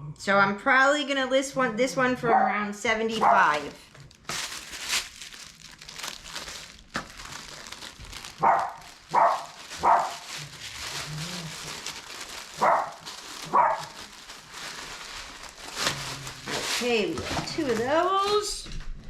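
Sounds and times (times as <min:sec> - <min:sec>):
dog barking: 0:02.2 - 0:03.6, 0:08.4 - 0:10.2, 0:12.6 - 0:14.0.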